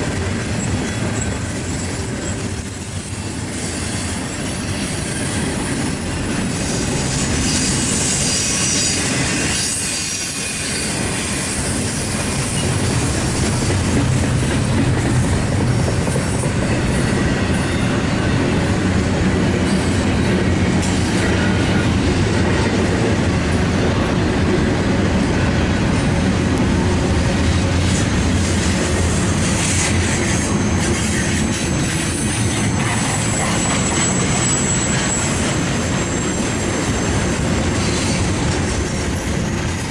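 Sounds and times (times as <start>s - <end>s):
freight train rumbling on rails: 0.0s - 39.9s
high wheel squeal: 0.6s - 14.0s, 29.1s - 38.3s.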